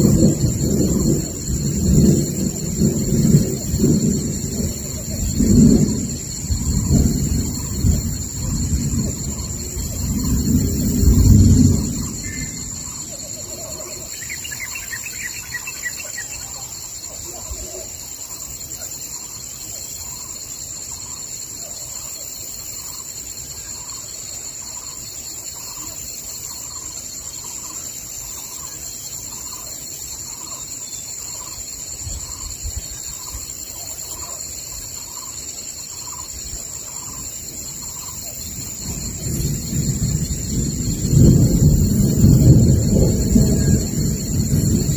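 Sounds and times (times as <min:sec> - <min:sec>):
thunder rumbling: 0:00.0 - 0:18.3, 0:36.0 - 0:44.9
bird trill: 0:13.7 - 0:16.7.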